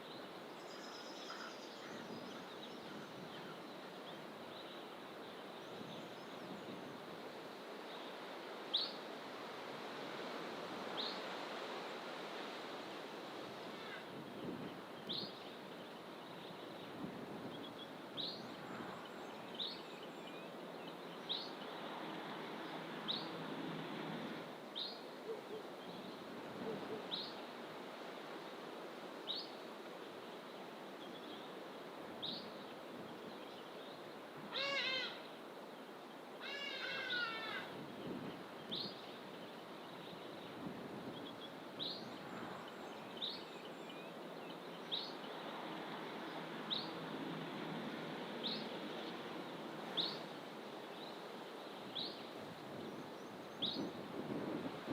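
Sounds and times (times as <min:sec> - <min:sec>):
bird mewing call: 0:34.5 - 0:35.3, 0:36.4 - 0:37.8.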